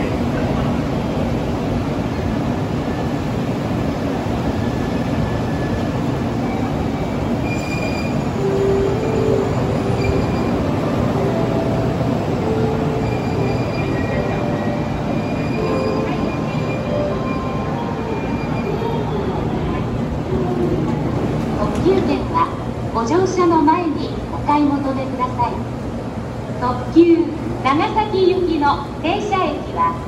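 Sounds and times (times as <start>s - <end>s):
train wheels rumbling on rails: 0.0s - 30.0s
thin high tones: 7.5s - 19.9s.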